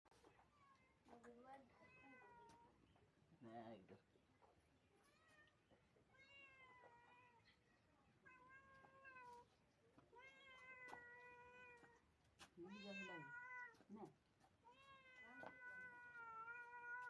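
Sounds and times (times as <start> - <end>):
cat meowing: 5.0 - 7.4, 8.2 - 9.5, 10.1 - 12.0, 12.6 - 13.8, 14.6 - 17.0.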